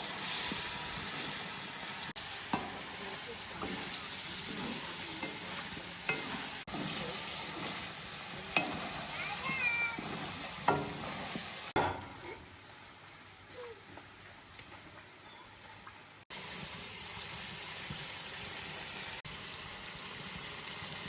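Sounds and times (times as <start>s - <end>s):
food sizzling in a pan: 0.0s - 21.0s
utensil knocking against pan: 10.0s - 11.0s.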